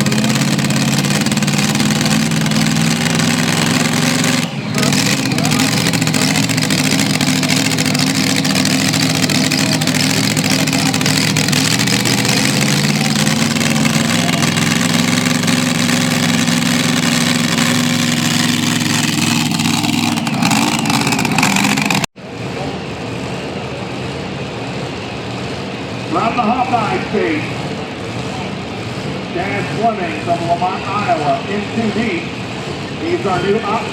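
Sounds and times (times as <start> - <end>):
engine running at high revs: 0.0 - 33.9.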